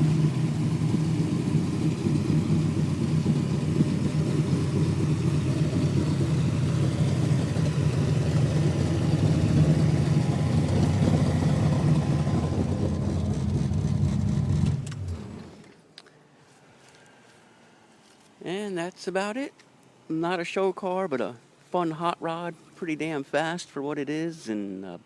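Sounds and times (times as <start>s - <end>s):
car engine running: 0.0s - 15.8s.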